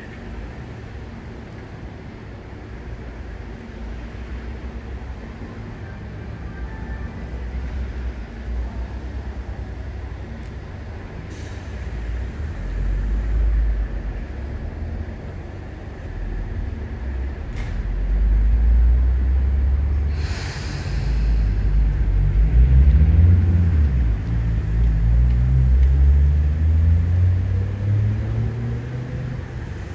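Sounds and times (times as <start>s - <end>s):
train rumble: 0.0s - 29.9s
air brakes hissing: 11.3s - 13.5s, 20.0s - 22.4s.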